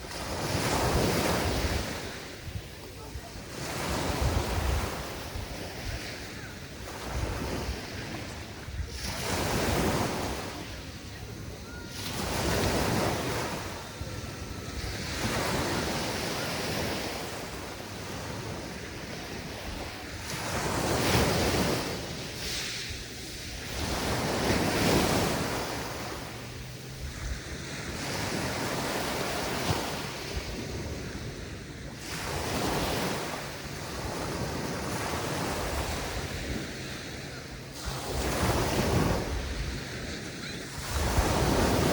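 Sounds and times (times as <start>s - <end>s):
waves breaking on a beach: 0.0s - 41.9s.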